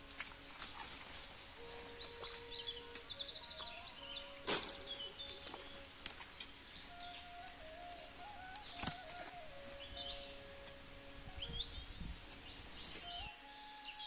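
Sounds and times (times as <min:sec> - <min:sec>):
birds chirping: 0:00.0 - 0:14.0
soft background music: 0:00.0 - 0:14.0
steady high hiss: 0:00.0 - 0:14.0
sharp snap: 0:04.4 - 0:05.4, 0:08.4 - 0:09.3.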